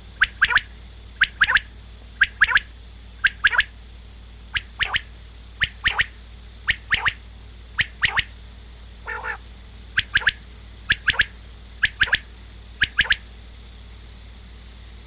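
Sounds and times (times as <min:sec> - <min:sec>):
quail calling: 0:00.2 - 0:03.7, 0:04.5 - 0:07.2, 0:07.8 - 0:08.3, 0:09.0 - 0:13.3.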